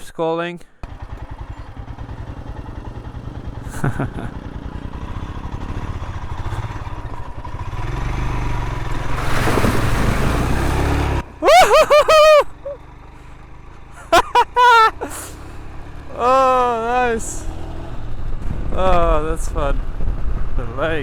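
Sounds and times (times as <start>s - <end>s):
motorcycle engine rumble: 0.8s - 21.0s
wind noise: 18.0s - 21.0s.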